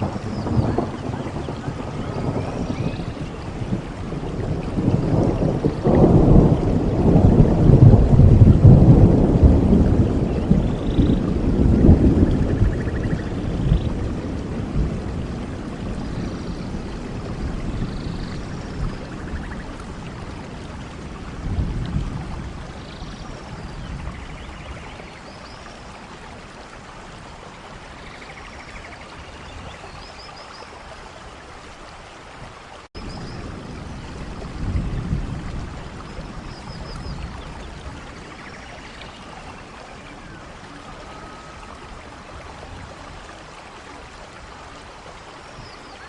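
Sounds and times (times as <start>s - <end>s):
birds chirping and trilling: 0.0s - 6.0s, 10.1s - 14.1s
heavy rain hissing: 0.0s - 46.0s.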